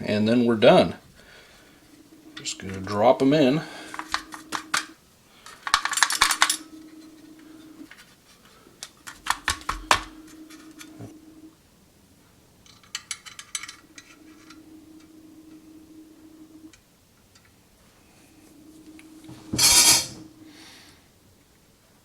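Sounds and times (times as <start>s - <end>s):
bursts of clicks: 1.8s - 11.5s.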